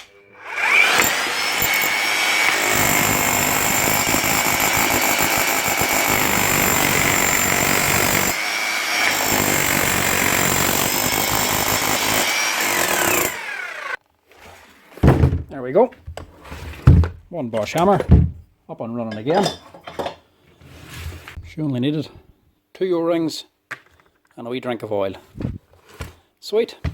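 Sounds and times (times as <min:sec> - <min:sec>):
motor spinning up and winding down: 0:00.5 - 0:10.6, 0:11.3 - 0:14.0
demolition hammer hammering: 0:00.9 - 0:08.4, 0:09.0 - 0:13.4.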